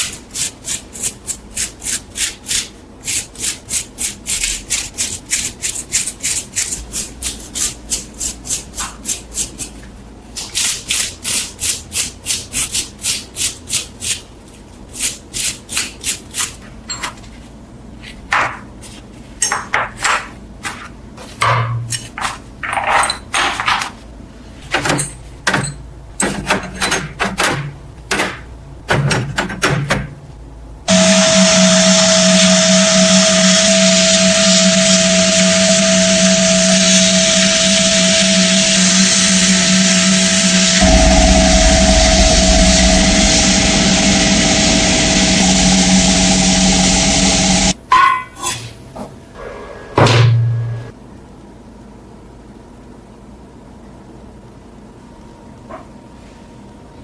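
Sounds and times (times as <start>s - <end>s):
power tool humming: 30.9s - 47.8s.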